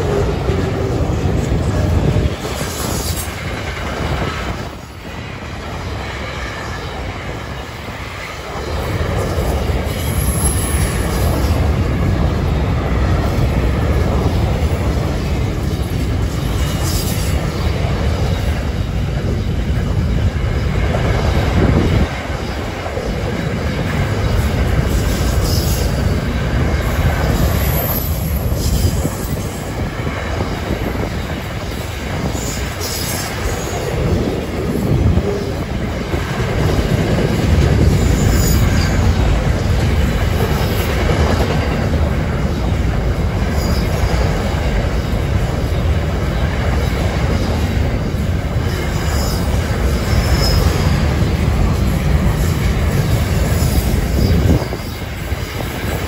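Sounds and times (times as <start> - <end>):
freight train wheels on rails: 0.0 - 56.0
wind buffeting microphone: 0.0 - 56.0.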